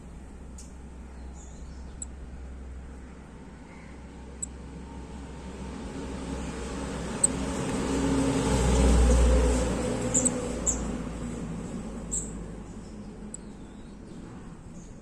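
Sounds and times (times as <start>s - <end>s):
low rumble of passing vehicle: 0.0s - 15.0s
small bird chirping: 0.5s - 2.2s, 10.1s - 10.9s, 12.0s - 15.0s.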